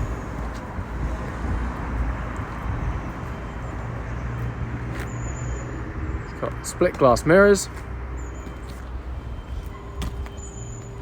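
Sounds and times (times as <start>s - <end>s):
vehicle engine idling: 0.0s - 4.2s.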